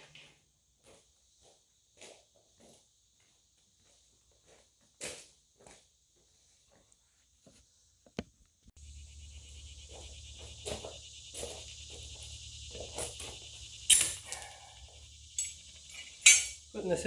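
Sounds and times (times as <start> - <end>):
high buzzing: 8.8 - 17.0
metal clanks and knocks: 15.4 - 16.7.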